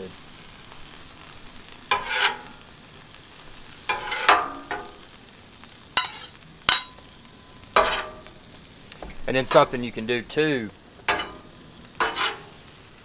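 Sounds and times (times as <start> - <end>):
food sizzling on a griddle: 0.0 - 13.0
metal tool scraping griddle: 1.9 - 2.7, 3.9 - 5.0, 6.0 - 7.0, 7.8 - 8.3, 9.0 - 10.3, 11.1 - 12.6.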